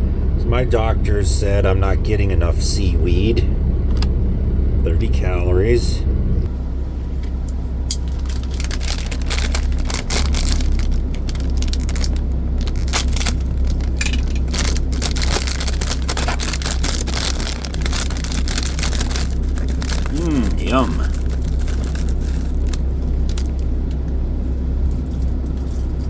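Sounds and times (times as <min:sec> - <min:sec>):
vehicle engine idling: 0:00.0 - 0:26.0
seaweed snack crinkling: 0:07.9 - 0:24.1.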